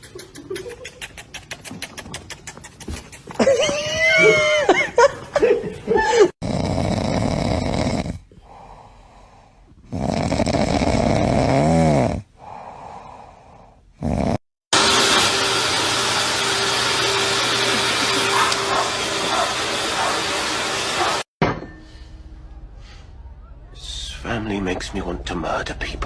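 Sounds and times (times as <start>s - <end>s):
animal snoring: 6.4s - 14.4s
quiet breaths: 8.3s - 9.9s, 12.4s - 14.0s.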